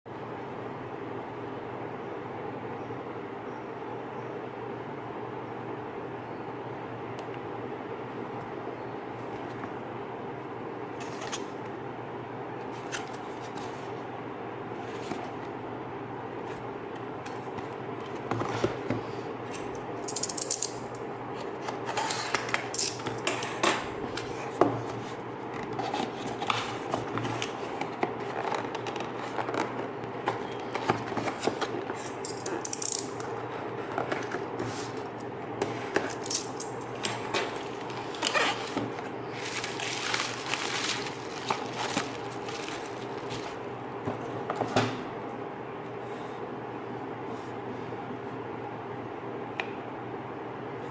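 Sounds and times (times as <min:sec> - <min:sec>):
steady low hum: 0:00.1 - 0:50.9
packaging clicks and rustles: 0:35.9 - 0:43.7.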